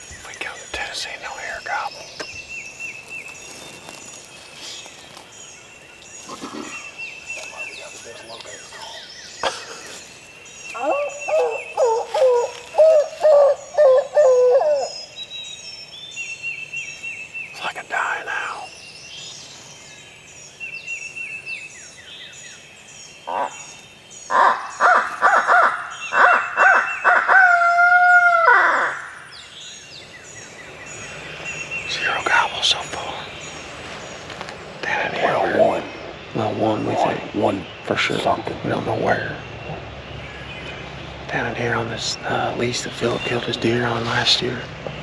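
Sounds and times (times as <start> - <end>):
songbirds chirping and trilling: 0.0 - 45.0
owl hooting: 10.7 - 15.2, 24.3 - 29.2
low animal call: 10.8 - 14.9.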